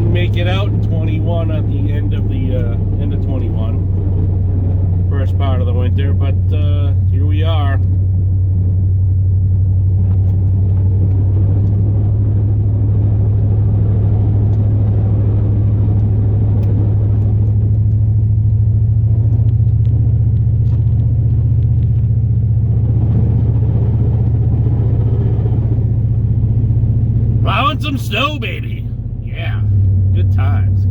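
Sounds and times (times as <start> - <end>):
road noise: 0.0 - 30.9
truck engine cruising: 0.0 - 30.9.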